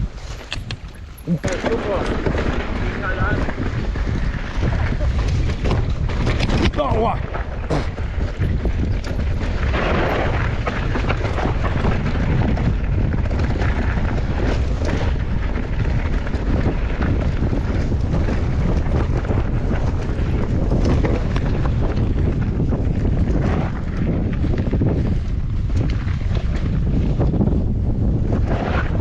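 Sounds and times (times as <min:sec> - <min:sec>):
wind buffeting microphone: 0:00.0 - 0:29.0
tyres rolling on gravel: 0:00.2 - 0:27.2
bike knocks and rattles: 0:00.2 - 0:28.4.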